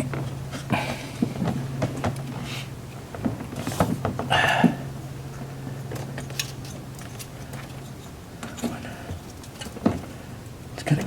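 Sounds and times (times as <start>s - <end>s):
steady low hum: 0.0s - 11.0s
rustle of metal parts: 5.9s - 10.0s.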